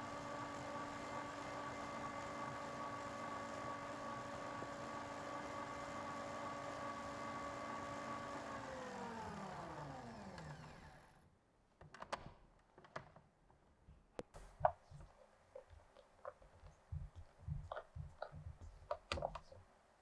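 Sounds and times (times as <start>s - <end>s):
electric mixer motor whine: 0.0s - 11.2s
light clicks and knocks: 14.2s - 19.6s.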